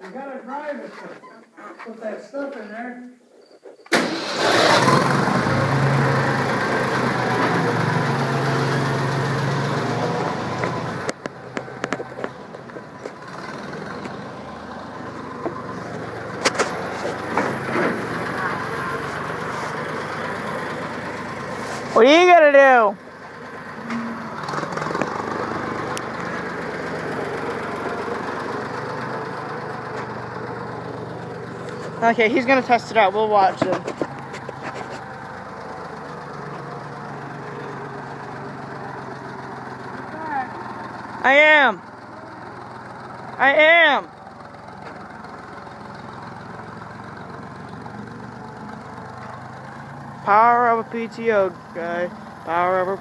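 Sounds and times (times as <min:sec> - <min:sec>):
tractor engine idling: 0:03.9 - 0:53.0
short engine knocks: 0:16.4 - 0:18.2, 0:33.4 - 0:35.3.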